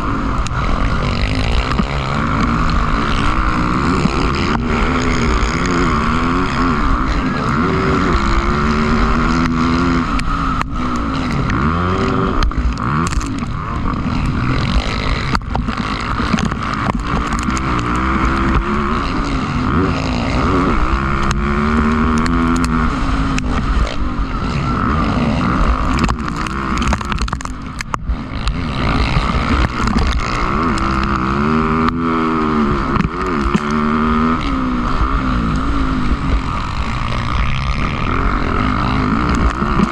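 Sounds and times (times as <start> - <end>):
motocross bikes revving: 0.0 - 39.9.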